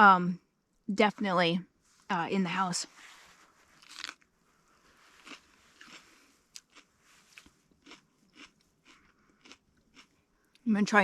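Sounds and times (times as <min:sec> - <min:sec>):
person chewing crunchy pepper: 0:03.8 - 0:04.2, 0:05.0 - 0:10.6.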